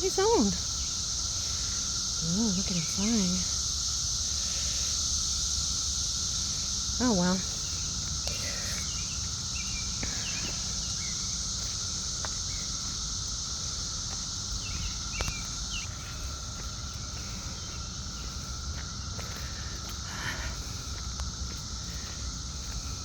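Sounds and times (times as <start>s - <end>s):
cicada chorus drone: 0.0s - 23.0s
bird chirps: 8.7s - 11.4s, 14.5s - 16.2s.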